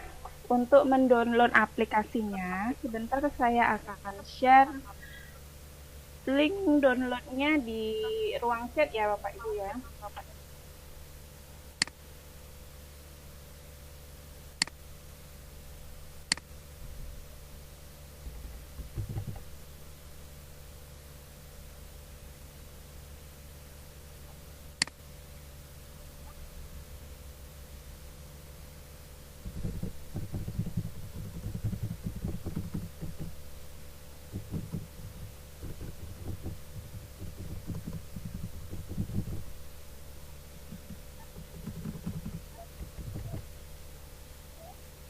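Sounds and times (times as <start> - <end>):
steady low hum: 0.0 - 45.0
soft low thumps: 18.3 - 19.5, 29.4 - 43.6
keyboard typing thuds: 18.8 - 19.5, 29.4 - 33.5, 34.3 - 39.6, 40.7 - 43.5
computer mouse clicks: 40.8 - 43.4.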